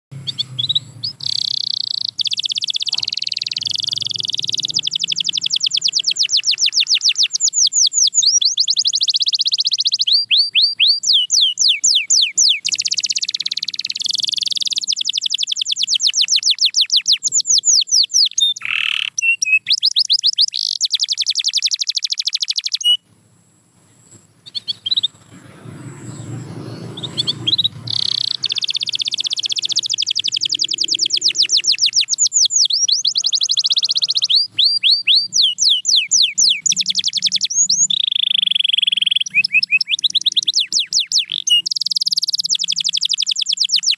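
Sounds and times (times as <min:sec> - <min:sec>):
canary singing trills: 0:00.1 - 0:23.0, 0:23.9 - 0:43.9
low rumble: 0:25.0 - 0:29.4.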